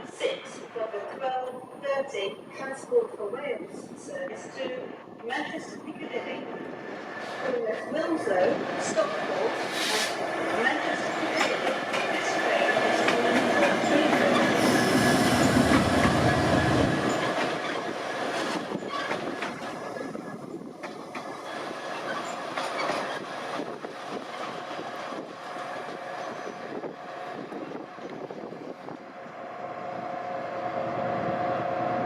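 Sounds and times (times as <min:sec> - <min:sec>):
train low rumble: 0:00.0 - 0:32.0
wheels clicking over rail joints: 0:10.6 - 0:14.8
train wheel squeal: 0:13.2 - 0:17.9, 0:21.4 - 0:23.3.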